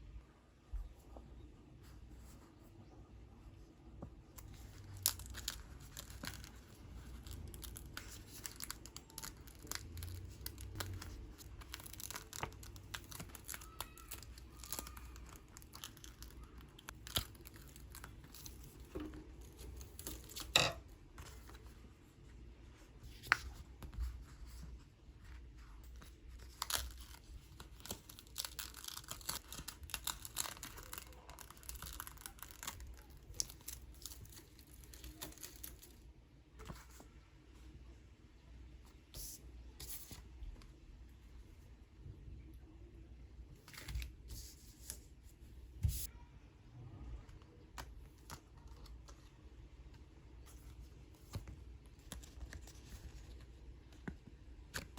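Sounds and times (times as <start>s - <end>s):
paper and plastic crinkling: 4.4s - 20.6s, 25.4s - 36.0s.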